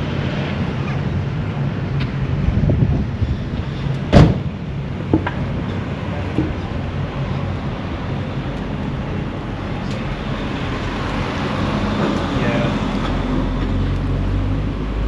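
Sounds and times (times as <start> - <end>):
vehicle engine rumbling: 0.0 - 15.0
loud sharp knock: 4.1 - 4.5.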